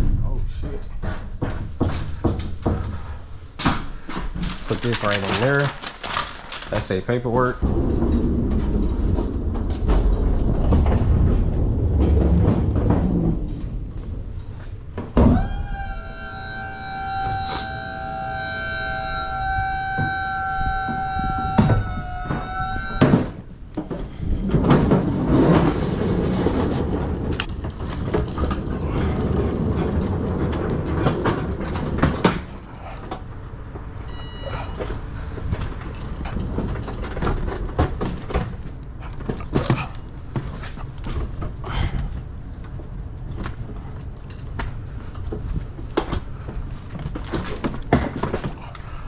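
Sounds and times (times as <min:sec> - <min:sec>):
hand truck rolling and rattling: 0:00.7 - 0:15.1, 0:24.5 - 0:33.9, 0:35.4 - 0:41.6
steady electronic tone: 0:15.2 - 0:23.0.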